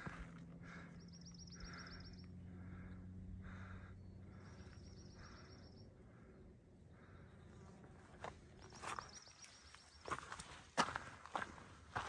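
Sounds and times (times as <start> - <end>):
faint low hum: 0.0 - 11.8.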